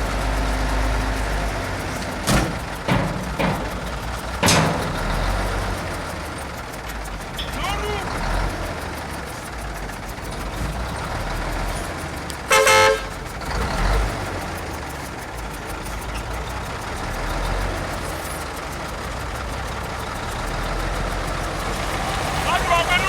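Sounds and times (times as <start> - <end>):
vehicle engine running: 0.0 - 23.0
car horn toot: 12.5 - 13.2, 22.3 - 23.0.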